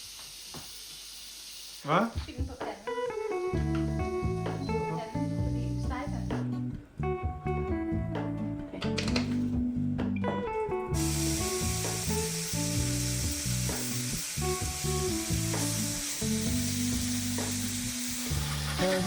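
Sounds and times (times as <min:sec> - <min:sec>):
food sizzling in frying pan: 0:00.0 - 0:06.2, 0:10.9 - 0:19.0
background music: 0:02.3 - 0:19.0.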